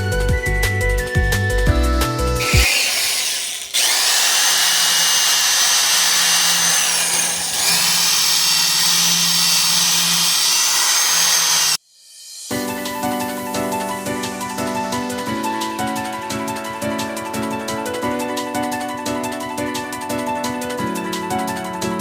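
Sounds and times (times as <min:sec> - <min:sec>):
power tool scraping metal: 0:02.4 - 0:11.8.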